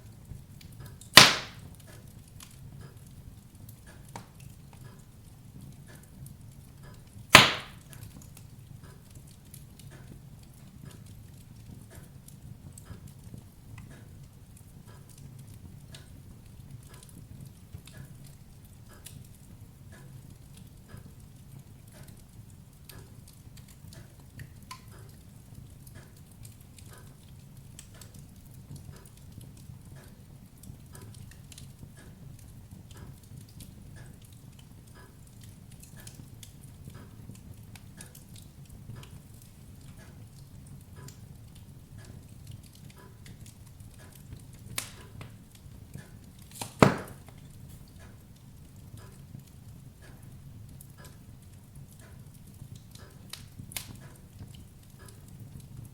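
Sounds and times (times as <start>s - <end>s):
wood fire crackling: 0.0s - 55.9s
loud sharp pop of fire: 1.1s - 1.7s, 7.3s - 8.0s, 46.5s - 47.4s
soft knocks: 46.8s - 47.2s.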